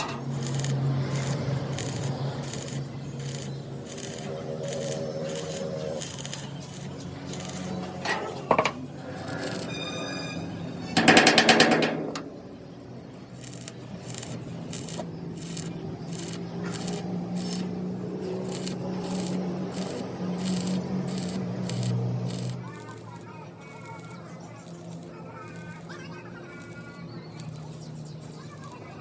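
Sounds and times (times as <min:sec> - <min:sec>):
rapid pneumatic hammering: 0:00.0 - 0:09.6, 0:11.0 - 0:12.6, 0:13.3 - 0:26.0
motor hum: 0:00.0 - 0:09.7
struck metal ringing: 0:09.5 - 0:12.6.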